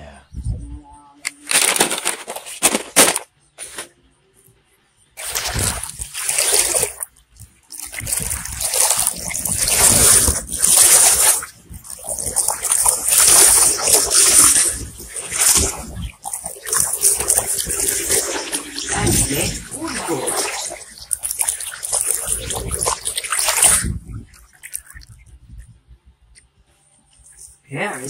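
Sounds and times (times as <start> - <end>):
water splashing and sloshing: 5.2 - 25.8.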